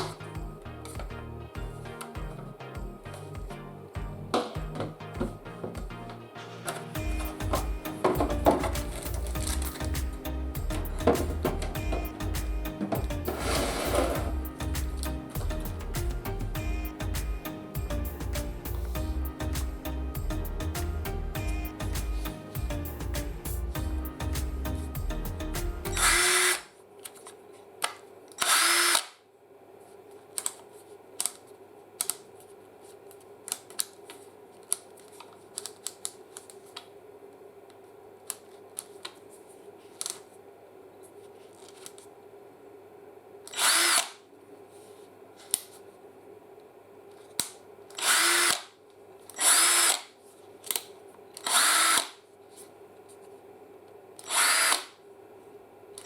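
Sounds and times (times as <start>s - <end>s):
cordless drill motor whine: 25.9s - 26.6s, 28.4s - 29.1s, 43.5s - 44.1s, 48.0s - 48.6s, 49.4s - 50.0s, 51.4s - 52.1s, 54.2s - 54.8s.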